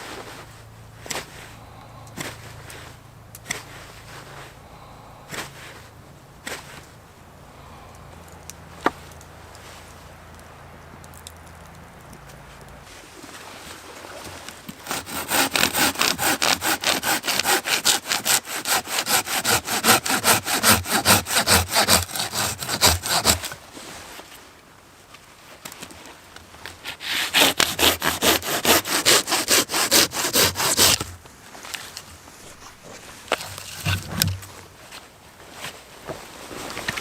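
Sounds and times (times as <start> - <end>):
hand saw cutting wood: 14.8 - 23.6, 26.8 - 31.2, 32.4 - 34.6.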